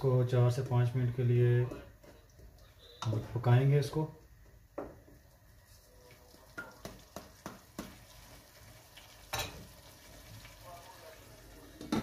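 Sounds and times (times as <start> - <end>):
onions sizzling in oil: 5.0 - 12.0
wooden spoon knocking a pot: 6.6 - 8.0.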